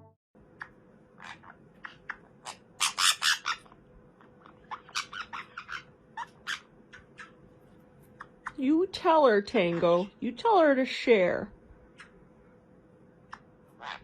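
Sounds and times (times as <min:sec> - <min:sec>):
faint steady hum: 0:00.0 - 0:14.0
parrot squawking and chirping: 0:00.5 - 0:08.8, 0:09.4 - 0:10.2, 0:11.9 - 0:12.3, 0:13.2 - 0:14.0.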